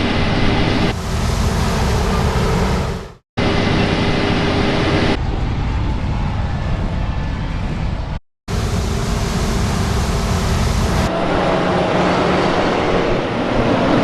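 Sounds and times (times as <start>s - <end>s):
heavy machinery running: 0.6s - 4.8s, 8.5s - 13.4s.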